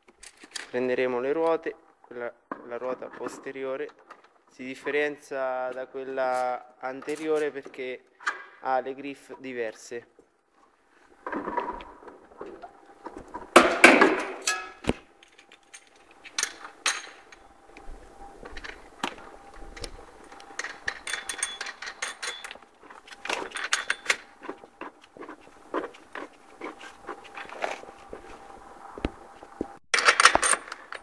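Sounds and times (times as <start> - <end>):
metal wheel nuts clinking and rattling: 13.6 - 17.6, 20.3 - 24.3, 30.0 - 31.0.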